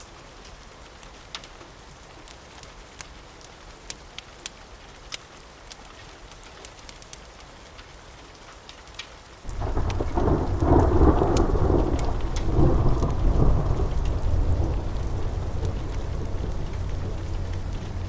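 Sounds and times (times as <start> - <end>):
steady rain: 0.0 - 18.0
fireplace crackling: 2.2 - 18.0
thunder rumbling: 9.5 - 18.0.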